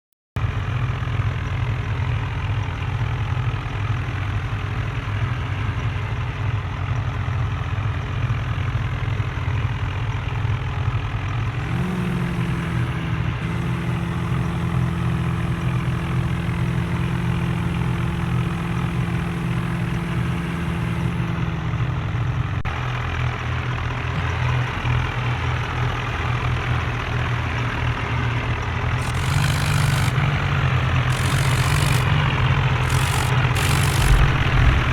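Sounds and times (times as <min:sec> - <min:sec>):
tractor diesel engines running: 0:00.4 - 0:34.9
steady tone: 0:32.8 - 0:34.9.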